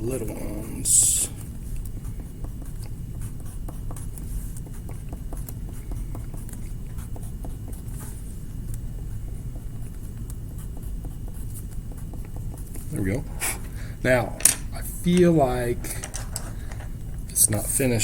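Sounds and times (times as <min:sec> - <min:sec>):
steady low hum: 0:00.0 - 0:18.0
drawing tool scratching paper: 0:02.0 - 0:08.4.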